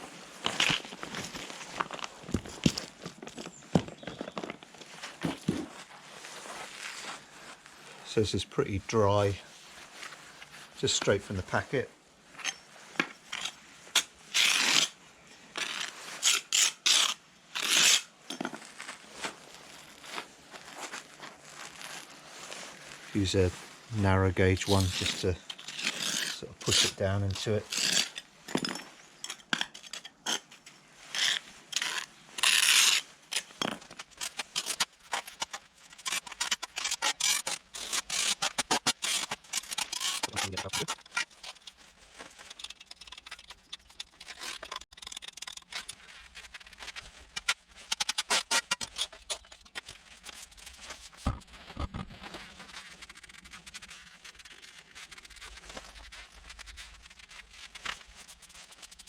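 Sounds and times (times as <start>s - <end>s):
pointing tool scraping compound: 24.4s - 46.0s.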